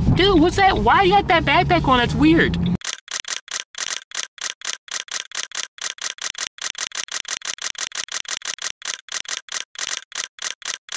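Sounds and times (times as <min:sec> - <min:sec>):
short sharp hissy clicks: 0:02.8 - 0:10.9.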